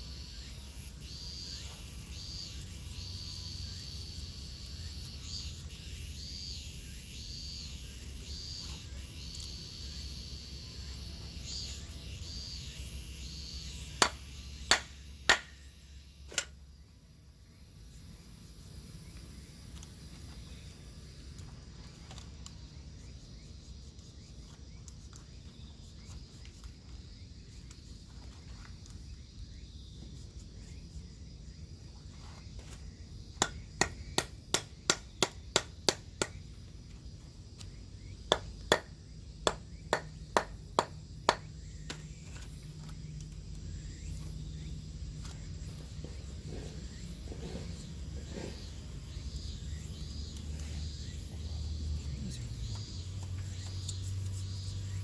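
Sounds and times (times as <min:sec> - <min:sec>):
sharp knocking strikes: 0:14.0 - 0:15.6, 0:33.4 - 0:36.4, 0:38.3 - 0:38.9, 0:39.5 - 0:42.0.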